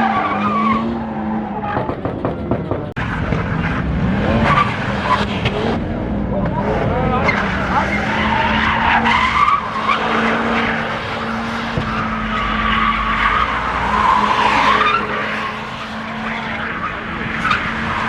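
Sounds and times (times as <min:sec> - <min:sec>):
tyres squealing: 0:07.2 - 0:18.0.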